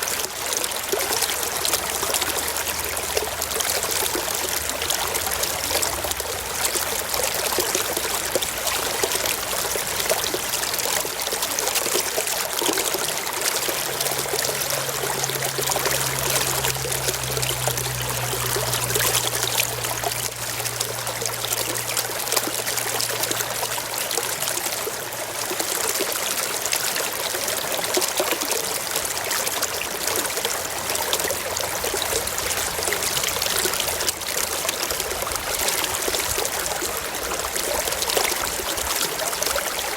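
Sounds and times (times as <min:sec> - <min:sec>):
stream trickling over rocks: 0:00.0 - 0:39.9.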